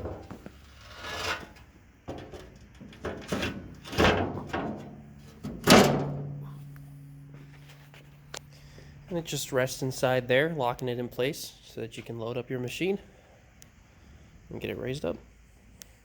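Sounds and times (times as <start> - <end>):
metal ramp knocks and clanks: 1.3 - 6.6
low metallic ring: 6.2 - 8.7.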